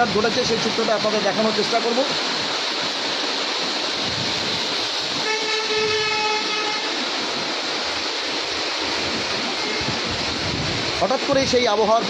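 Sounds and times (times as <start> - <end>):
heavy rain: 0.0 - 12.0
horn held tone: 5.2 - 6.9.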